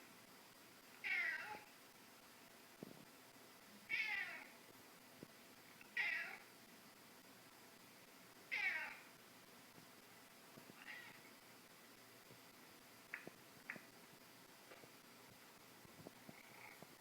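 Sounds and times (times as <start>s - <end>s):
cat meowing: 1.0s - 1.6s, 3.9s - 4.5s, 6.0s - 6.4s, 8.5s - 9.0s, 10.8s - 11.2s.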